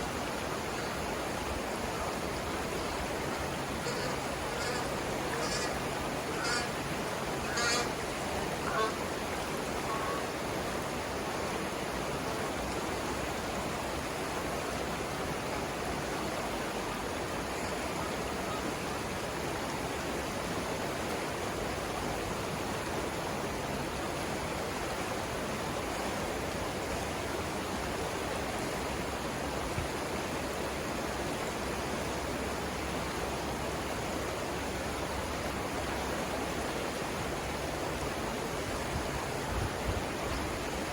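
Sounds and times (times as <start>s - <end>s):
river water rushing over rapids: 0.0s - 40.9s
short bird calls: 3.8s - 6.8s.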